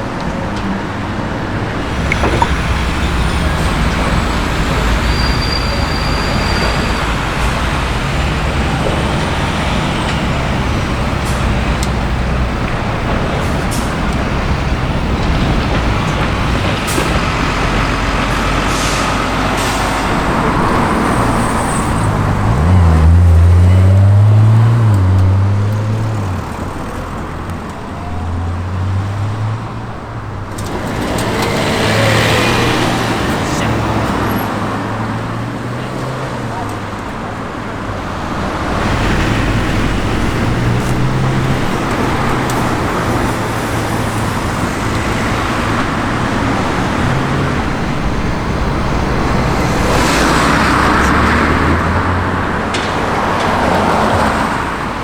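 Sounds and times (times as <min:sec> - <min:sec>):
road traffic noise: 0:00.0 - 0:55.0
vehicle engine running low revs: 0:01.8 - 0:29.9.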